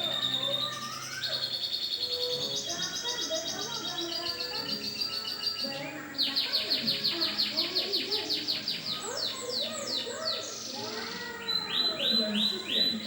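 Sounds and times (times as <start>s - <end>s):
canary singing high chirps and trill: 0.0s - 13.0s.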